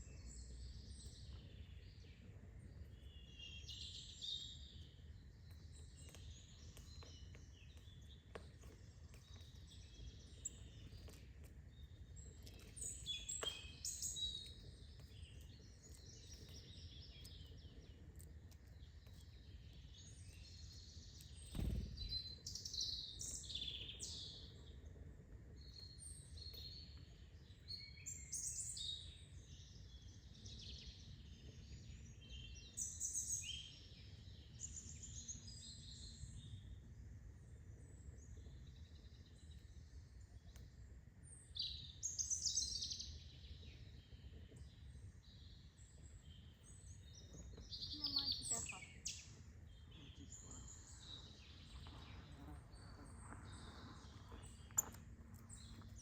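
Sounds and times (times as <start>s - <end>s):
songbirds chirping and singing: 41.3s - 56.0s.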